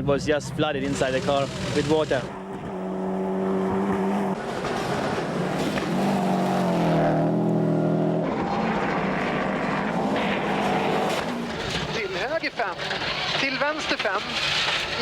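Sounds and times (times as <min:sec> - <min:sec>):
rally car engine revving: 0:00.2 - 0:15.0.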